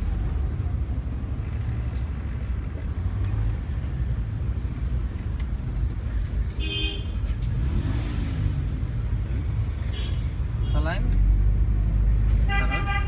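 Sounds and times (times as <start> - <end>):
car horn toot: 6.6 - 7.2, 12.4 - 13.0.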